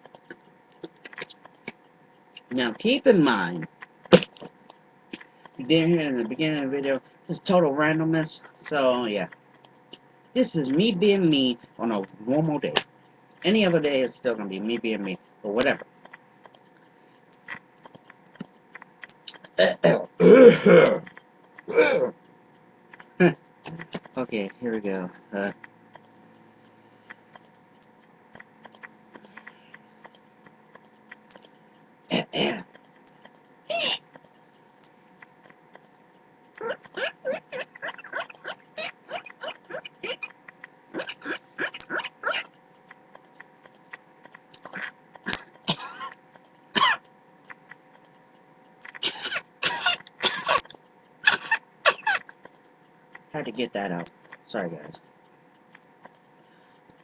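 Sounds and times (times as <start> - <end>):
mouth clicks: 15.6 - 53.3
man imitating animal calls: 19.3 - 21.1, 21.7 - 22.2, 33.7 - 34.1, 36.6 - 42.5
man making vocal squeals: 33.7 - 34.0, 36.6 - 40.3.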